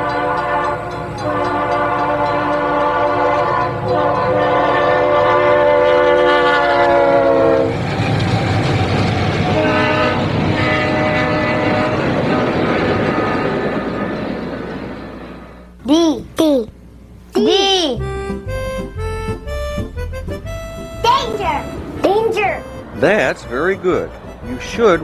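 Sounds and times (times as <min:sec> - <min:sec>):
train horn blasts: 0:00.0 - 0:07.9, 0:09.4 - 0:13.4, 0:22.6 - 0:25.0
passing train rumble: 0:00.0 - 0:15.8, 0:18.5 - 0:25.0.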